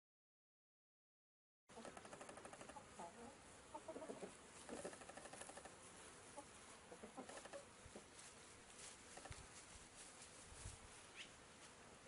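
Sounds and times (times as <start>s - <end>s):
steady low hiss: 1.7s - 12.0s
faint short bird calls: 11.1s - 11.4s.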